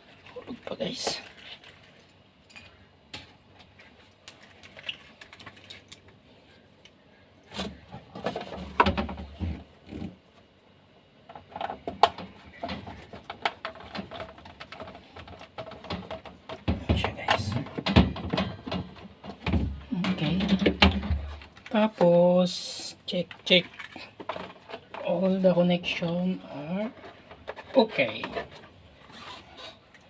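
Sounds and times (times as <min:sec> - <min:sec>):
clatter and dull thumps: 0:11.3 - 0:21.6.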